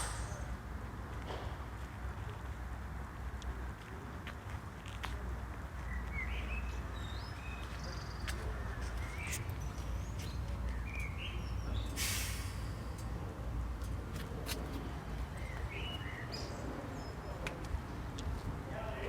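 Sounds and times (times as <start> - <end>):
brief hiss: 0.0 - 0.5, 12.0 - 13.0
small birds chirping: 5.8 - 12.0, 15.1 - 18.1.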